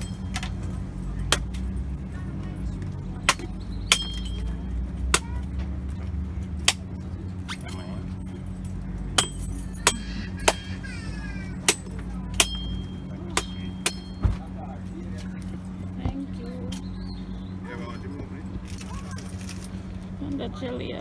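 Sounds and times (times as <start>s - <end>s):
low hum: 0.0s - 21.0s
machete chopping coconut: 1.3s - 1.6s, 3.2s - 4.5s, 5.1s - 5.4s, 6.6s - 6.8s, 9.2s - 10.9s, 11.7s - 14.4s.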